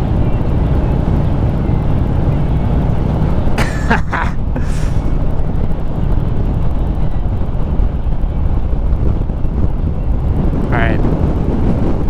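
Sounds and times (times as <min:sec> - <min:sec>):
wind rushing over microphone: 0:04.2 - 0:12.0.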